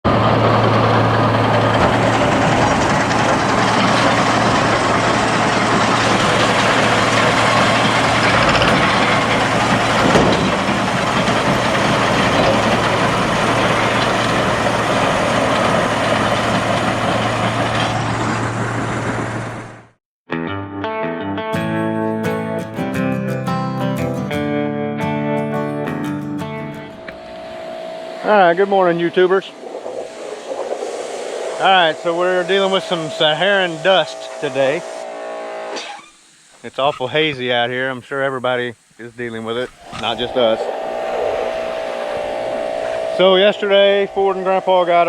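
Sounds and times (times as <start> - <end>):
tractor engine running: 0.0 - 20.0, 26.4 - 35.6, 39.0 - 45.0.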